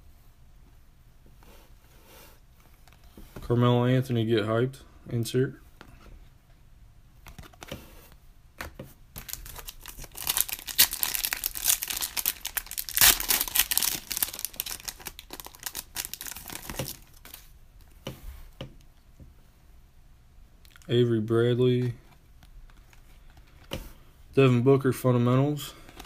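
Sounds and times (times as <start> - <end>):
wrapper torn open and crinkled: 9.2 - 17.4.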